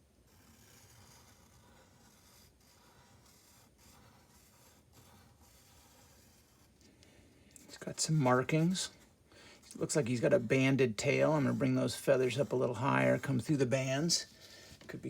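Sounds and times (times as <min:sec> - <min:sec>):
pen scratching on paper: 0:00.2 - 0:06.8, 0:09.8 - 0:15.0.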